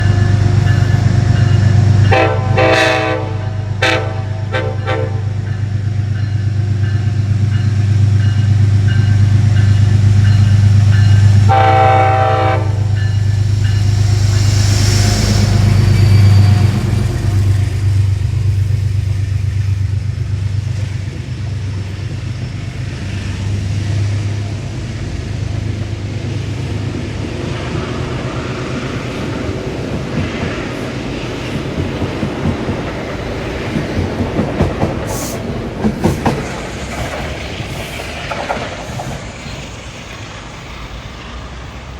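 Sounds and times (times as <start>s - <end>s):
train horn blasts: 2.0s - 5.4s, 11.4s - 13.3s.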